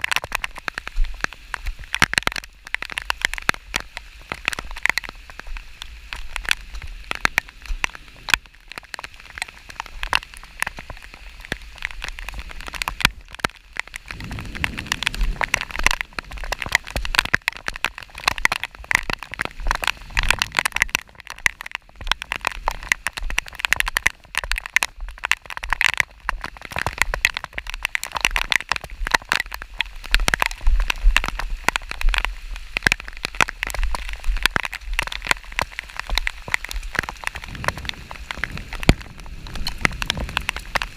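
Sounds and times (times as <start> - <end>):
rain drops hitting close: 0.0 - 40.9
low rumble: 14.0 - 17.0.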